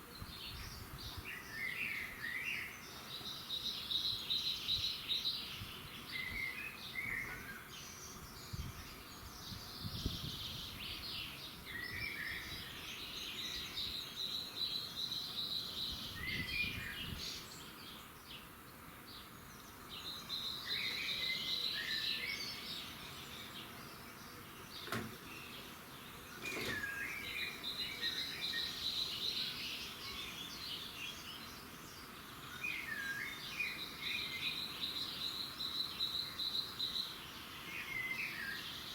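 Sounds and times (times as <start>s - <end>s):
birds singing: 0.0s - 38.9s
faint knocks: 24.8s - 25.2s.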